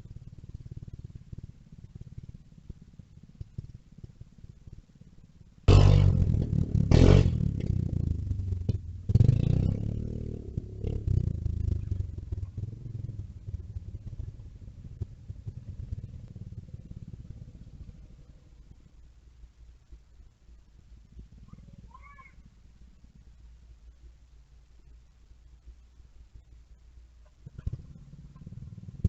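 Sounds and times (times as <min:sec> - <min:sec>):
mini bike engine revving: 0:05.7 - 0:18.3, 0:27.4 - 0:29.0.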